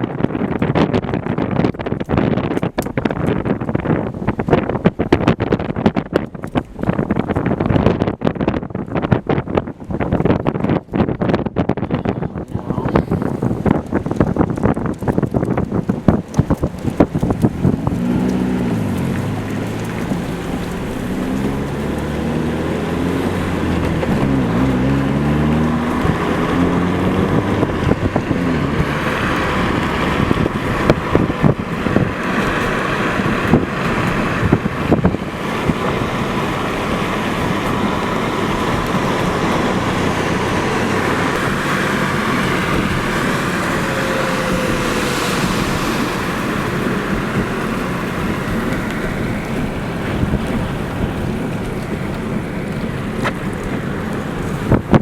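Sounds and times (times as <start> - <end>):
wind gusting on microphone: 0.0 - 55.0
vehicle engine running: 12.4 - 55.0.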